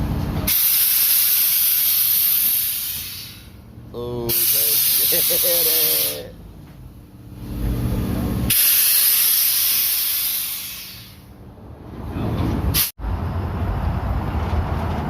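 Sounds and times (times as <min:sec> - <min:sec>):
low steady rumble: 0:00.0 - 0:15.0
compressed air hissing: 0:00.5 - 0:06.3, 0:08.5 - 0:11.4, 0:12.7 - 0:12.9.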